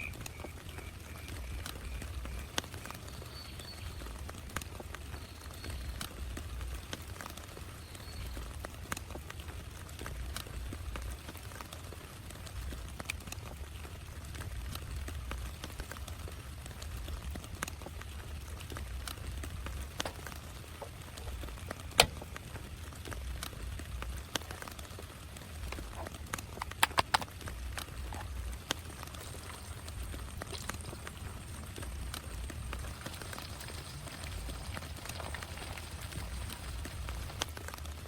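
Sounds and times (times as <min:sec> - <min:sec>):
heavy rain on a tent: 0:00.0 - 0:38.0.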